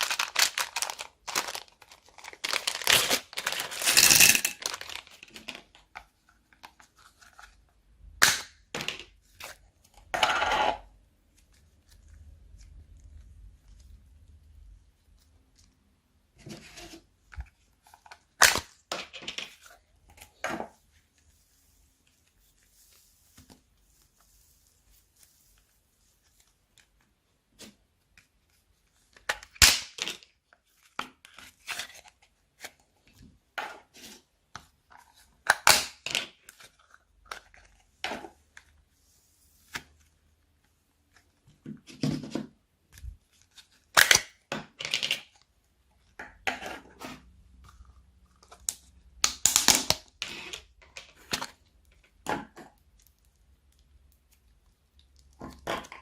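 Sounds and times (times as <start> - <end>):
slime crackling and tearing: 0.0 - 3.9.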